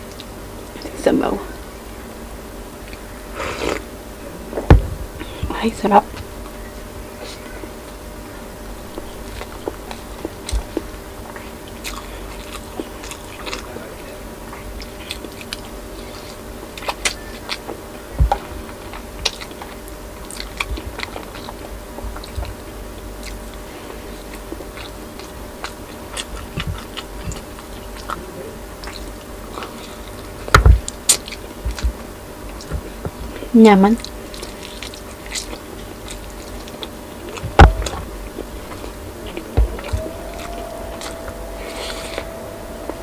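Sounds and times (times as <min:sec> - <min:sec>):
loud thump: 0:04.6 - 0:05.0
close chewing and biting: 0:08.7 - 0:43.0.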